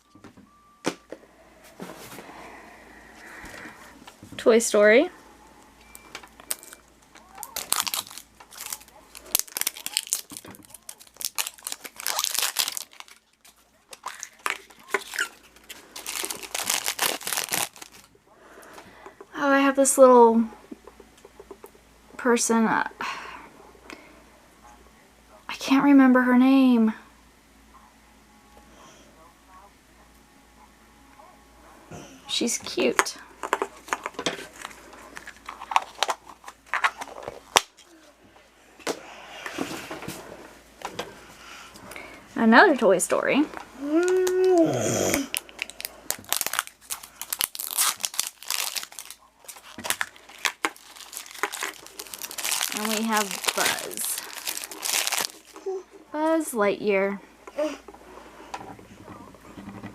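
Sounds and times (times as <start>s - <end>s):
toy wrapper crinkling and tearing: 6.0s - 18.2s, 32.9s - 38.1s, 43.8s - 55.7s.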